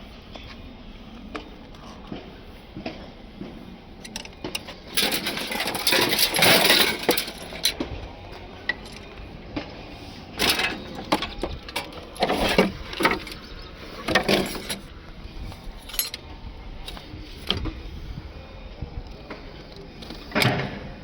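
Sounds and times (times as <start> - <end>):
tools and scrap metal clanking: 2.8 - 18.1, 19.2 - 21.0
low rumble: 14.8 - 21.0.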